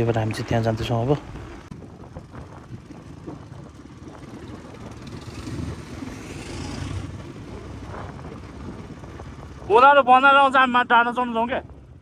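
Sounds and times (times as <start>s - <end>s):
dirt bike engine rumbling: 0.0s - 12.0s.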